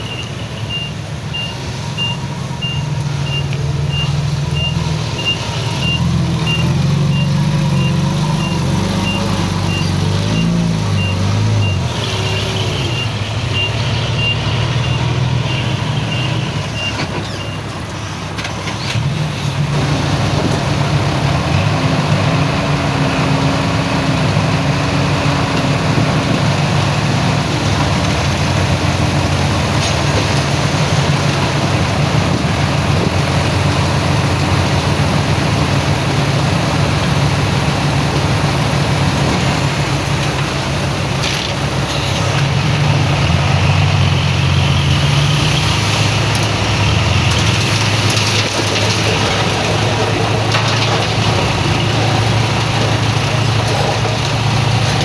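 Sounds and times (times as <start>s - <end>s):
reversing alarm beeping: 0.0s - 17.7s
diesel earthmoving machinery running: 0.0s - 55.0s
engine running under load: 0.0s - 55.0s.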